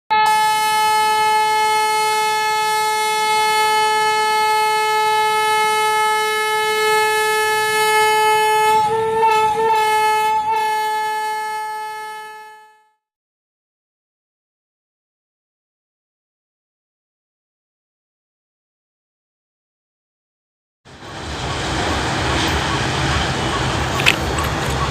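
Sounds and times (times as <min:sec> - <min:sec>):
locomotive horn long note: 0:00.1 - 0:13.1.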